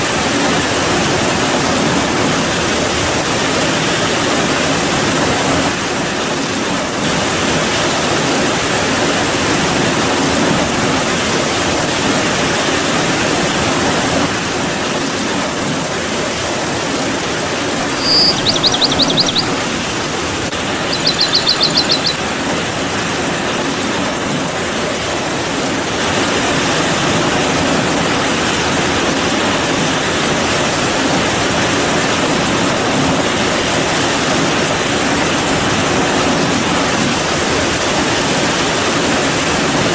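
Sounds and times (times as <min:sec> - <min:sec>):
steady rainfall: 0:00.0 - 0:39.9
high rapid trill: 0:17.8 - 0:22.3.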